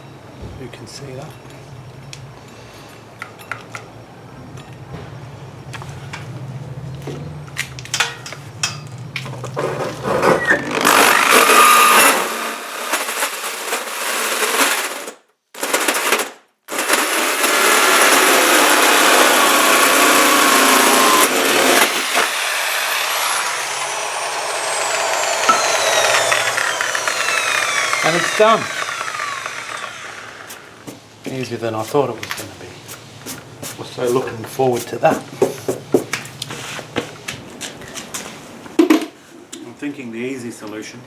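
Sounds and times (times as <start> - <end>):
falling drill whine: 10.4 - 30.9
power drill hole saw grinding steel: 10.4 - 30.9.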